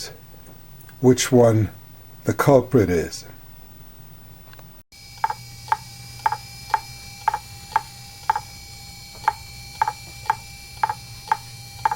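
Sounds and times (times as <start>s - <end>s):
faint whine: 5.0s - 11.9s
sharp ticking: 5.2s - 11.9s.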